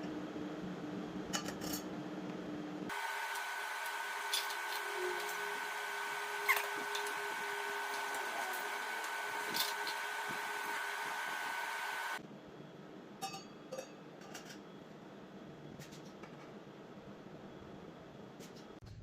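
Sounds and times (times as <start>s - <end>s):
small motor whining: 2.9s - 12.2s.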